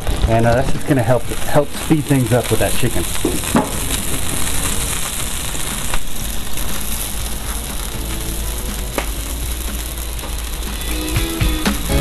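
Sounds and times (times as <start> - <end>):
chicken sizzling in oil: 0.0 - 12.0
background music: 3.4 - 12.0.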